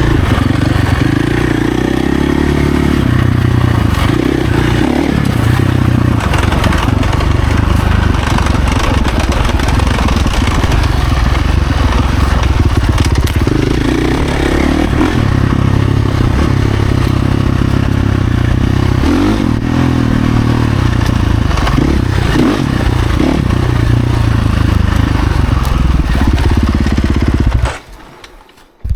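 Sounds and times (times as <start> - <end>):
dirt bike engine running hard: 0.0 - 27.8.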